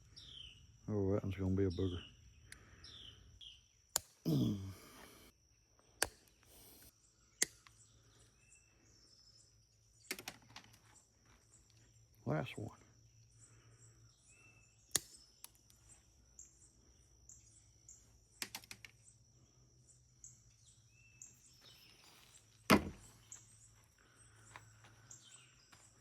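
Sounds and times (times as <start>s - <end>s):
hand snips cutting: 4.0s - 4.2s.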